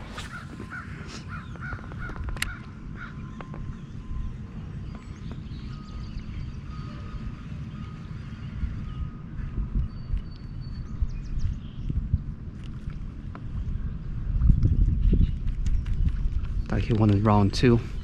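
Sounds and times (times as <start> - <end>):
wind rumble on microphone: 0.0 - 18.0
faint short bird calls: 0.1 - 3.5.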